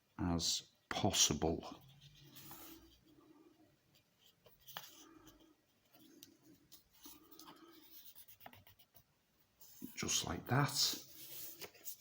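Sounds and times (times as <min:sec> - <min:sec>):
paper rustling and creasing: 0:10.9 - 0:12.0.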